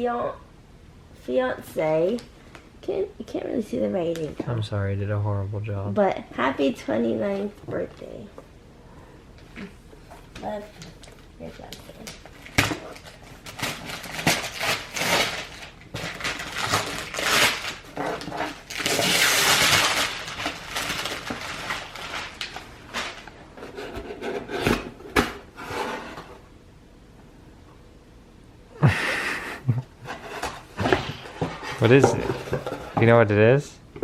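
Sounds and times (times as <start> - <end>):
wrapping paper rustling and crinkling: 11.9 - 23.5.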